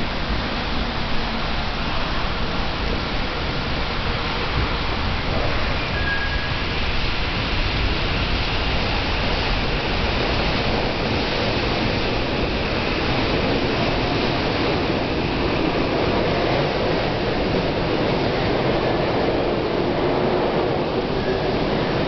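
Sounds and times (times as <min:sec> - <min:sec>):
electric train moving slowly: 0:00.0 - 0:22.0.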